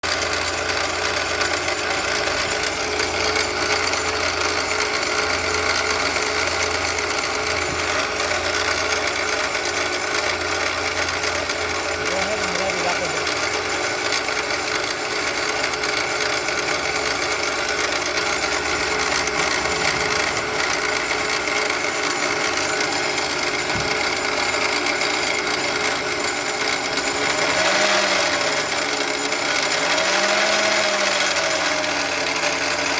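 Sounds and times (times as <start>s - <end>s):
car mechanical noise while driving: 13.3s - 32.5s.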